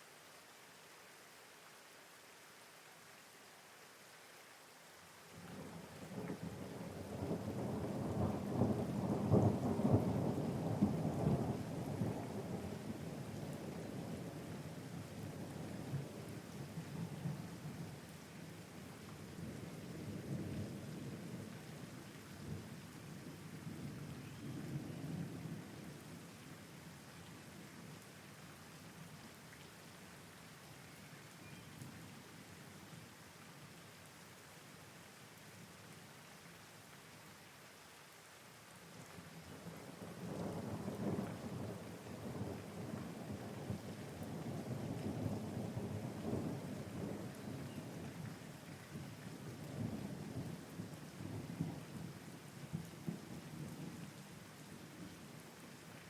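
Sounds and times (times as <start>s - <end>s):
steady rain: 0.0s - 56.0s
rain hissing: 38.5s - 55.9s.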